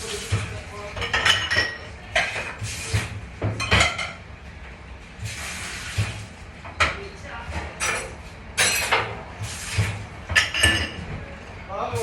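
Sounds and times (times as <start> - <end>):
plates and dishes clattering: 1.0 - 4.2, 7.8 - 11.2.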